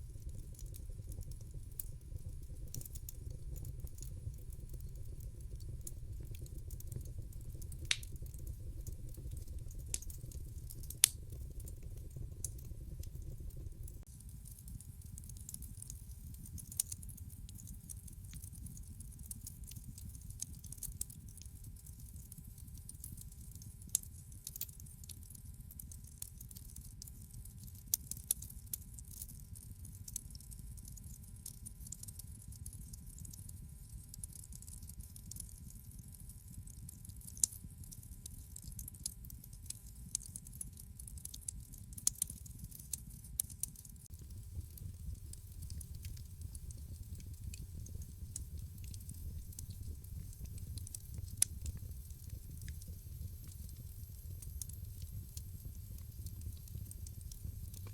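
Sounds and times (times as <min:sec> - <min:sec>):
wood fire crackling: 0:00.0 - 0:29.2, 0:38.8 - 0:57.9.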